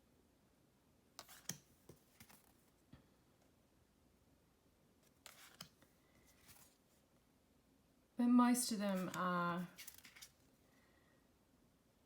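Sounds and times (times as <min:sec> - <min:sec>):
cards rustling and clicking: 0:01.2 - 0:02.6, 0:05.0 - 0:06.8, 0:09.0 - 0:10.4.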